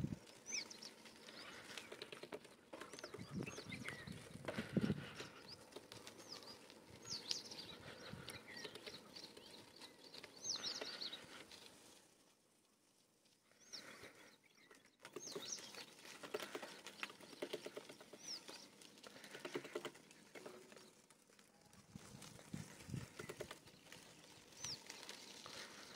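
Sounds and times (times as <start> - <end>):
faint birdsong chirps: 0.0 - 25.9
rattling bird chatter: 0.4 - 11.6, 13.7 - 21.0, 22.6 - 25.9
small clicks: 14.6 - 21.5.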